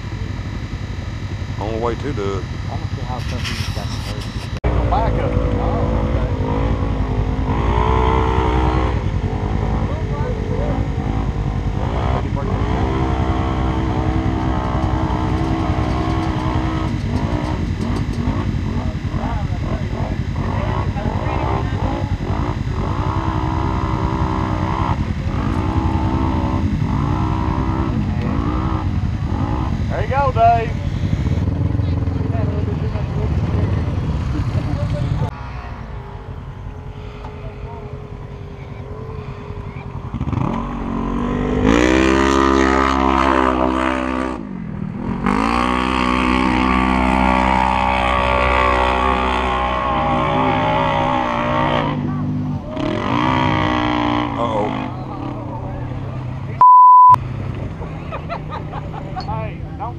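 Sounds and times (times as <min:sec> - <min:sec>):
engine revving: 0:00.0 - 0:57.6
deep engine rumble: 0:00.0 - 0:59.9.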